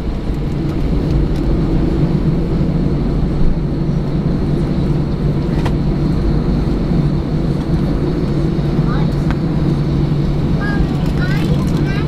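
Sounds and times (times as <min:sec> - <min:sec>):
airliner engines rumbling: 0:00.0 - 0:12.0
faint high engine whine: 0:00.0 - 0:12.0.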